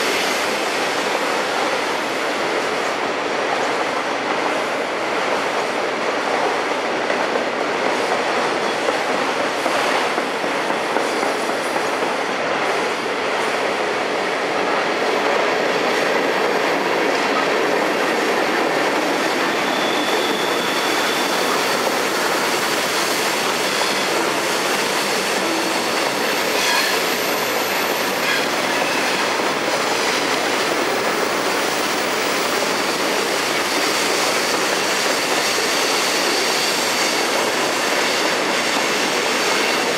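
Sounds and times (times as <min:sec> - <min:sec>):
freight train wheels rumbling on rails: 0:00.0 - 0:39.9
faint high wheel squeals: 0:19.5 - 0:21.8.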